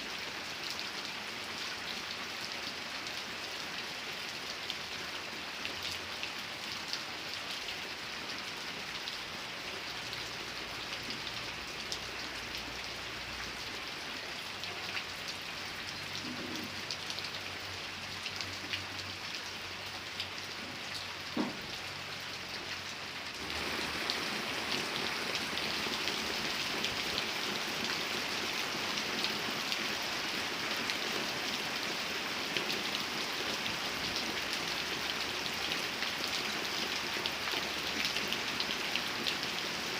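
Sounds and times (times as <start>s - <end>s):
rain falling: 0.0s - 39.9s
knock: 21.4s - 21.6s.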